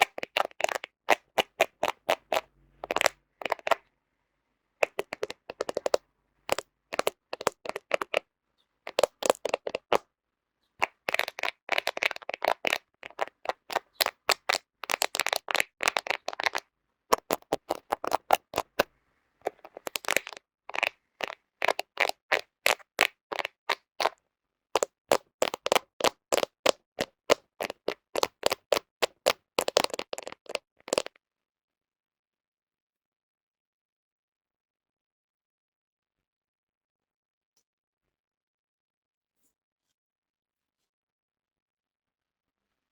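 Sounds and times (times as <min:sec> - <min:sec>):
fingernails tapping on camera lens: 0:00.0 - 0:03.8, 0:04.8 - 0:08.2, 0:08.9 - 0:10.0, 0:10.8 - 0:18.9, 0:19.5 - 0:24.2, 0:24.8 - 0:31.1.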